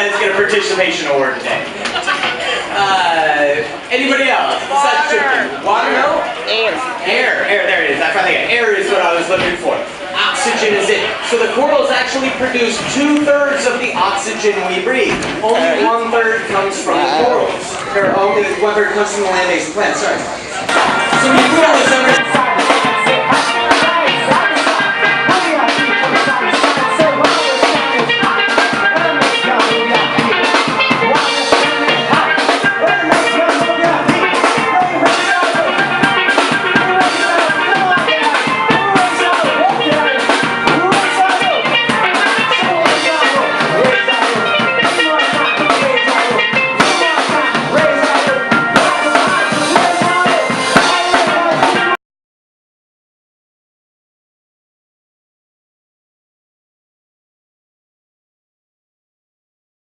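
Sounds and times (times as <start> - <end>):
drum kit beat: 20.7 - 52.0
steel drum music: 20.7 - 52.0.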